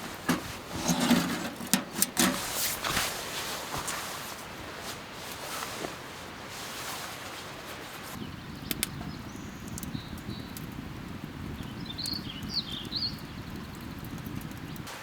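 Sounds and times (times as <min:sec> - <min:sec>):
sharp clicks: 0:08.7 - 0:09.0.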